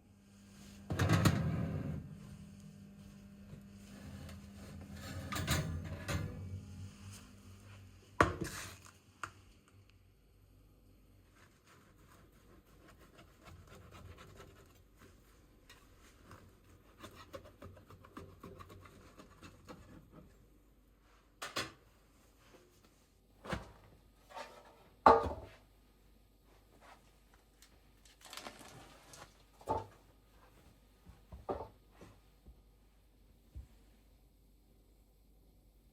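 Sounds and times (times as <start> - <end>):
soft scraping and rustling: 1.5 - 9.0, 26.5 - 30.7.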